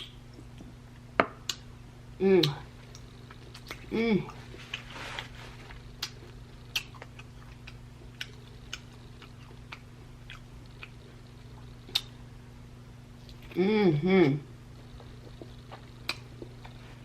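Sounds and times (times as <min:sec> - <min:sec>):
low electrical hum: 0:00.0 - 0:17.0
person chewing food: 0:02.4 - 0:12.3, 0:14.7 - 0:17.0
wet mouth clicks: 0:06.0 - 0:11.0, 0:11.8 - 0:12.2.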